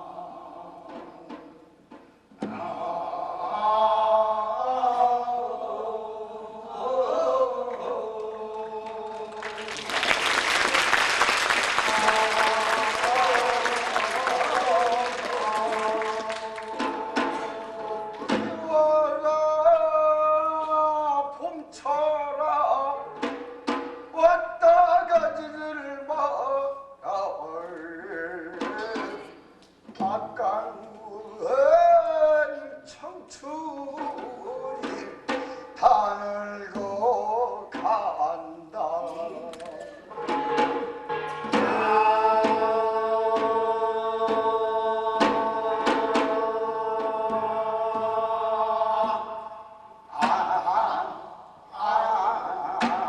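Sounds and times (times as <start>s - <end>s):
sharp drum strikes: 10.6s - 18.9s, 40.1s - 48.2s.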